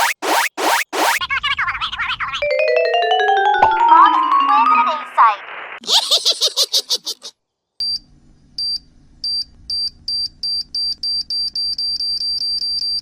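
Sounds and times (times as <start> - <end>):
electronic countdown beeping: 0.0 - 1.2.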